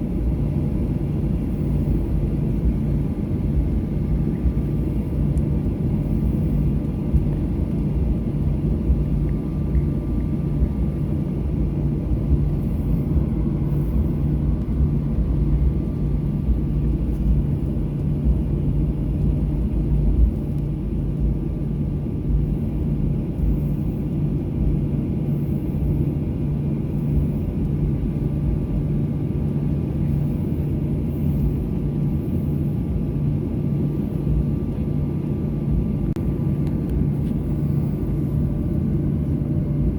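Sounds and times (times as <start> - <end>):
jet engines idling hum: 0.0 - 39.9
low airplane cabin rumble: 0.0 - 39.9.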